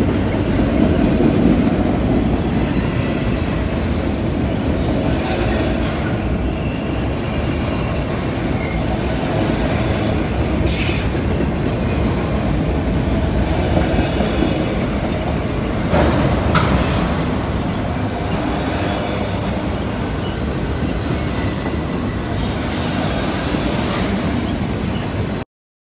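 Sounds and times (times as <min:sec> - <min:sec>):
steel wheels rumbling on rails: 0:00.0 - 0:25.4
high wheel squeals: 0:06.2 - 0:10.1, 0:14.0 - 0:16.3, 0:18.0 - 0:25.4.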